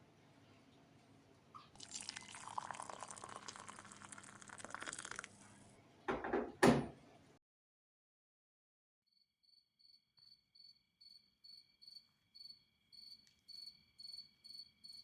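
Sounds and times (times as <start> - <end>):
liquid pouring into a vessel: 1.6 - 5.7.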